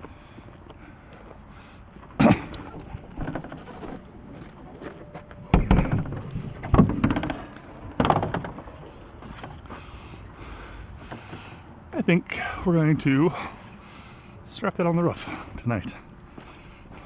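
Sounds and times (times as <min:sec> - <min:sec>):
junk thudding and clattering: 0:02.1 - 0:09.6.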